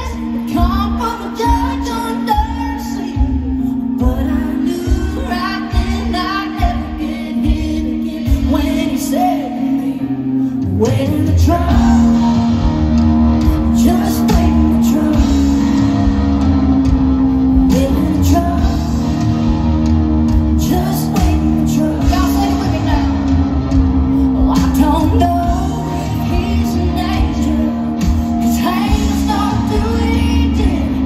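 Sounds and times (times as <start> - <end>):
woman singing: 0.0 - 16.5, 17.3 - 19.5, 20.2 - 23.4, 24.0 - 31.0
live country band with guitar: 0.0 - 31.0.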